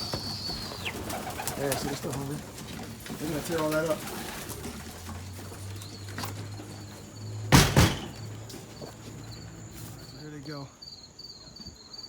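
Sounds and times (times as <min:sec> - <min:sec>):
crickets chirping: 0:00.0 - 0:12.0
sharp knocks: 0:07.5 - 0:08.4.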